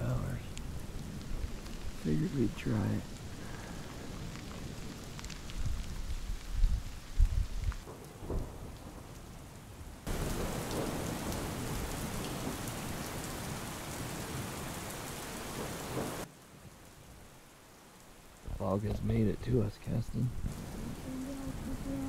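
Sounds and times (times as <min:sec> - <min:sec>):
rain hiss with drop ticks: 0:00.0 - 0:22.0
wind buffeting microphone: 0:00.2 - 0:08.6, 0:20.2 - 0:22.0.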